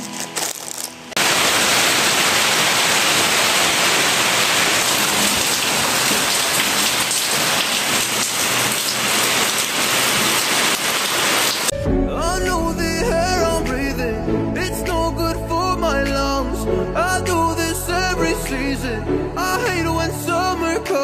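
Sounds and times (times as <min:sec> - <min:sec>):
rain falling on roofs: 0:00.3 - 0:11.7
water dripping off roof edge: 0:01.2 - 0:11.7.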